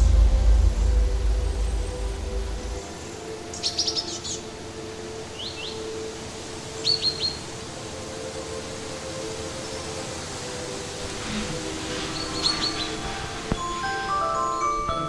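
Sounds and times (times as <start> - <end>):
bird chirping falling notes: 10.8 - 14.8.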